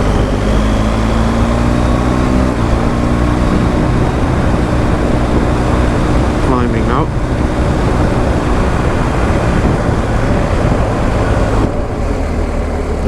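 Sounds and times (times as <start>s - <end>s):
motorcycle engine running: 0.0s - 13.0s
riding noise rush: 2.5s - 13.0s.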